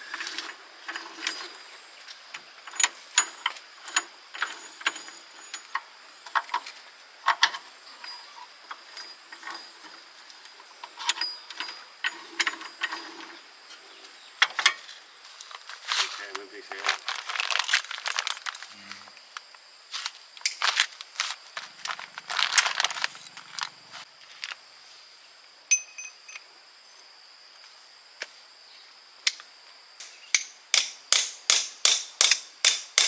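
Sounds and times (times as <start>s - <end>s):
metallic clinks of tools and parts: 0.1s - 13.4s, 25.7s - 26.5s, 30.0s - 33.0s.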